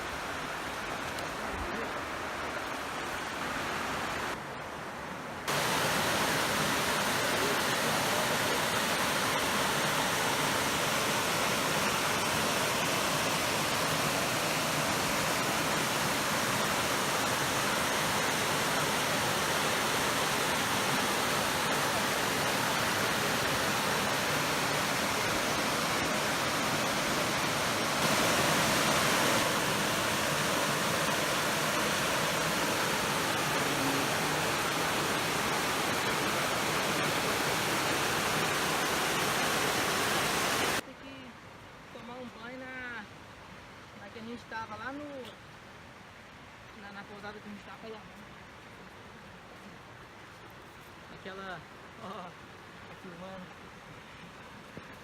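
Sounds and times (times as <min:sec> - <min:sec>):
waterfall rushing: 0:05.5 - 0:40.9.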